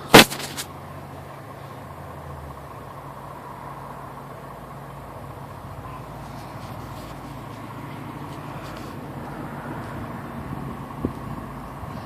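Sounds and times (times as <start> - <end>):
fire truck engine idling: 0.0 - 12.0.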